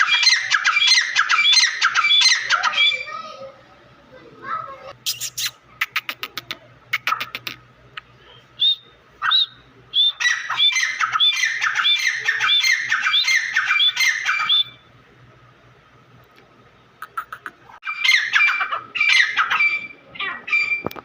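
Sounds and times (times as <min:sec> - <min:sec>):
birds calling shrill notes: 0:00.0 - 0:03.4, 0:08.6 - 0:15.0, 0:17.0 - 0:21.0.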